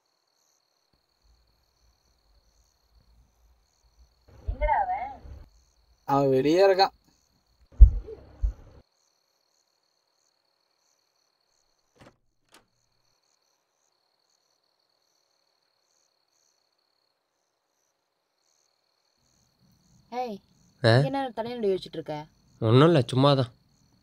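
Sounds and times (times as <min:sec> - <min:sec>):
crickets chirping: 0:00.0 - 0:24.0
loud thud: 0:07.8 - 0:08.8.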